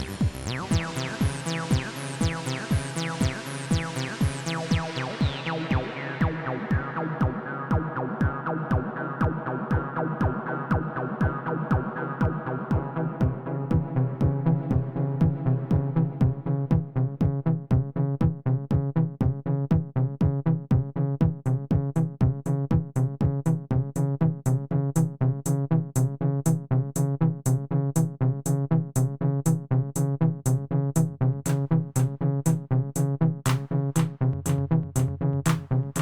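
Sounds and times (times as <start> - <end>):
fast drum machine pattern: 0.0 - 19.4, 31.5 - 36.0
held bass line: 0.0 - 36.0.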